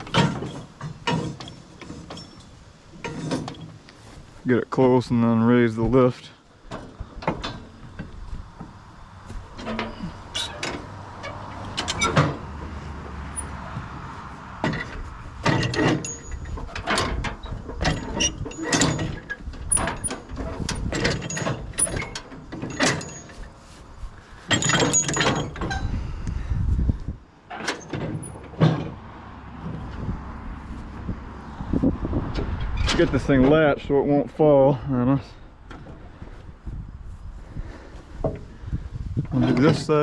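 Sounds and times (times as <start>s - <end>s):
metal clanks and scrapes: 0.0s - 4.3s, 6.7s - 13.8s, 14.6s - 23.8s, 24.4s - 26.0s, 27.5s - 29.0s.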